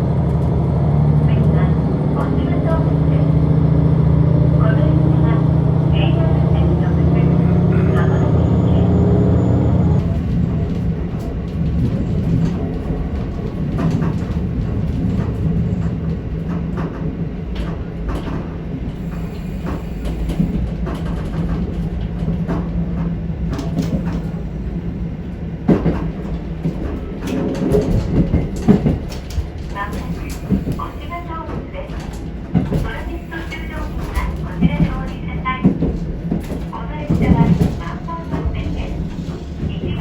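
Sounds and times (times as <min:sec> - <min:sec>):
railcar engine drone: 0:00.0 - 0:40.0.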